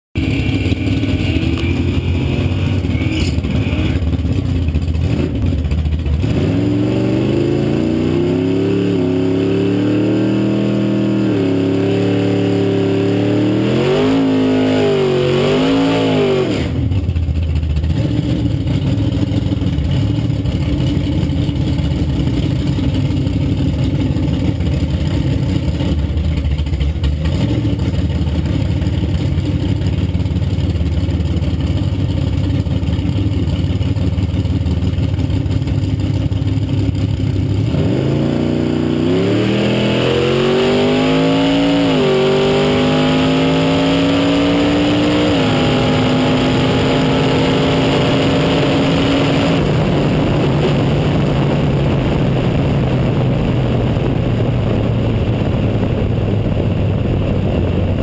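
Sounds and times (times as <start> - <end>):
car engines idling: 0.2 - 6.5, 16.7 - 39.2, 42.6 - 58.0
engine revving at high revs: 6.2 - 17.0, 37.4 - 54.2.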